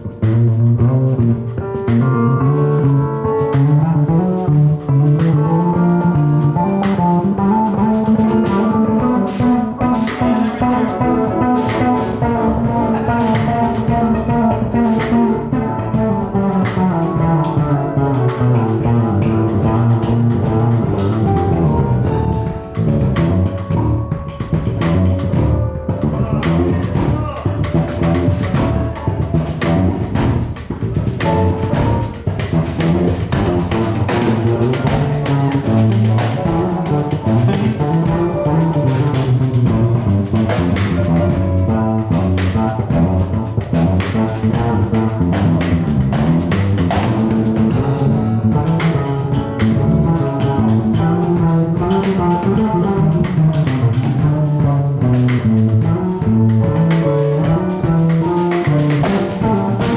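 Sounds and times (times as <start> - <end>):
drum kit: 0.0 - 59.9
electric bass: 0.0 - 59.9
piano: 0.0 - 59.9
saxophone: 2.8 - 59.9
guitar: 4.8 - 43.8.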